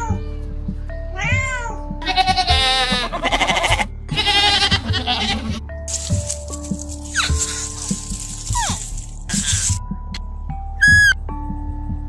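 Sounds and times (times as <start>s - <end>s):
background music: 0.0s - 12.0s
kitten meowing: 1.2s - 5.5s
goats bleating: 2.0s - 5.6s.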